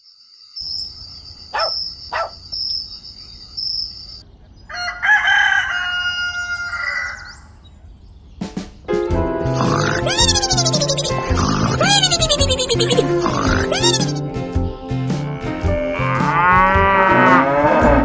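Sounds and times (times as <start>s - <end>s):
rooster crowing: 1.6s - 2.3s, 4.7s - 7.4s.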